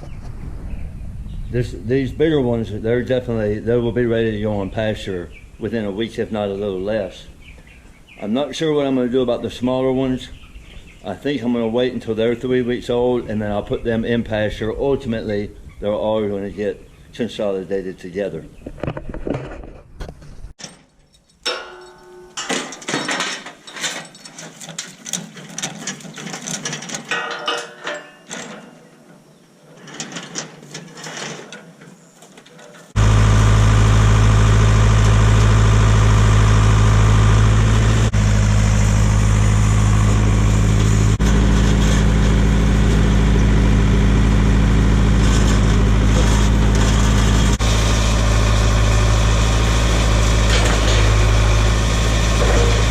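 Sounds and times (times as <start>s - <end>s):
tractor engine running: 32.9s - 52.9s.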